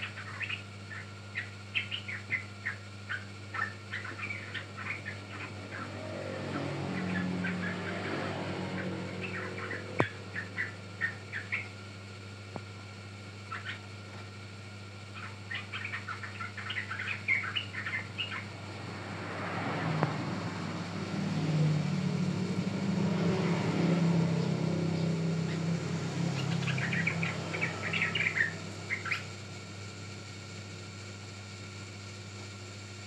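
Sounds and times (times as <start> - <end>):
bird chattering chirps: 0.0 - 11.8, 13.5 - 13.9, 15.1 - 19.0, 23.4 - 29.5
vehicle passing: 5.3 - 10.6, 18.2 - 29.0.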